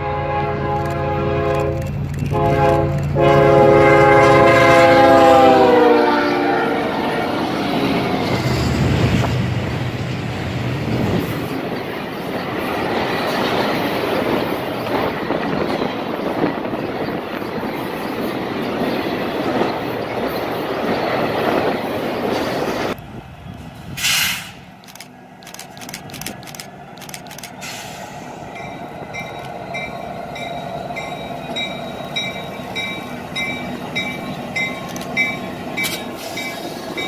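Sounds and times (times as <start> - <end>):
locomotive air horn blasts: 0.0 - 7.5
train wheels clickety-clack: 0.6 - 5.0, 7.4 - 37.0.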